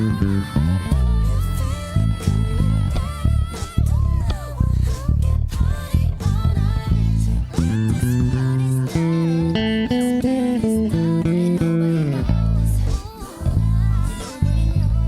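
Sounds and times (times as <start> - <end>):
backing music: 0.0 - 15.0
electric bass playing: 0.0 - 15.0.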